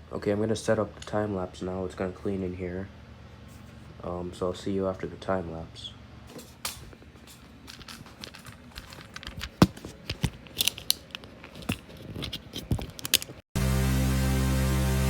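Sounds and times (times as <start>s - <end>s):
microphone handling clicks and rustles: 6.3s - 13.4s.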